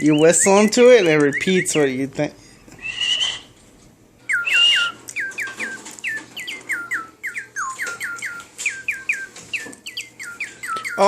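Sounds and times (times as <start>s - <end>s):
toy bird chirping: 0.0s - 2.0s, 4.3s - 11.0s
breathy whistle: 2.8s - 3.5s, 4.3s - 5.0s.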